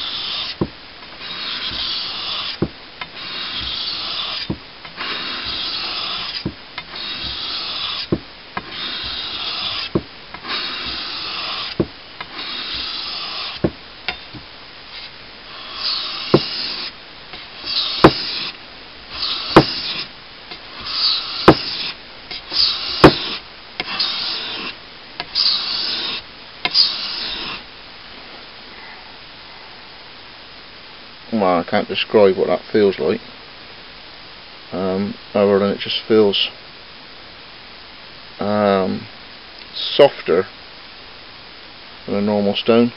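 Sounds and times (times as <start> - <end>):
blade rasping on wet whetstone: 0.0 - 0.6, 1.2 - 13.6, 14.9 - 20.1, 20.8 - 27.6.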